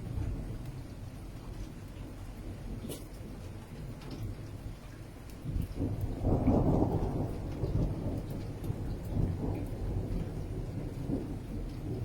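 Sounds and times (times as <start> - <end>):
low storm rumble: 0.0 - 12.0.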